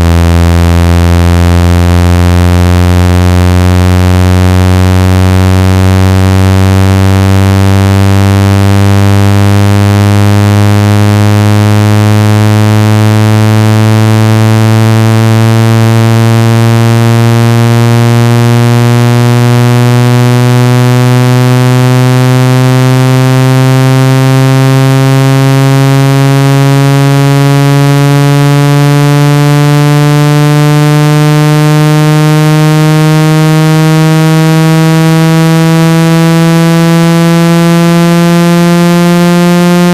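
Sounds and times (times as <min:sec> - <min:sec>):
low buzzy rising tone: 0:00.0 - 0:39.9.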